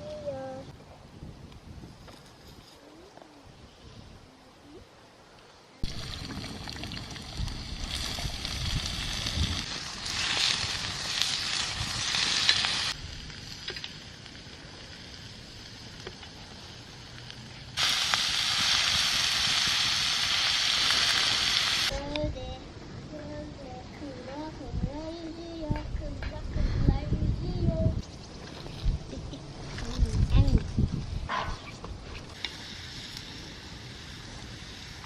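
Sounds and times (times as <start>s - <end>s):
food sizzling in a pan: 5.8s - 22.0s.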